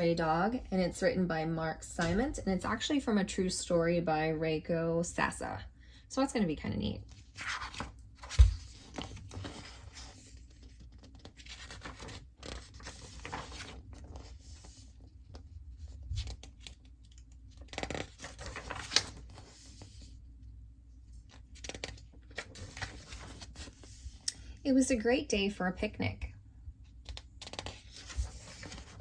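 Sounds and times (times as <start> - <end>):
book pages rustling and turning: 7.1 - 20.2, 21.2 - 24.3, 26.9 - 29.0.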